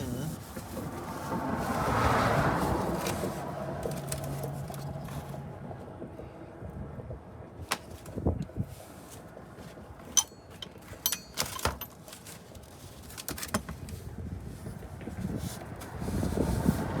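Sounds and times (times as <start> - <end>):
tools clicking and knocking: 10.0 - 12.4.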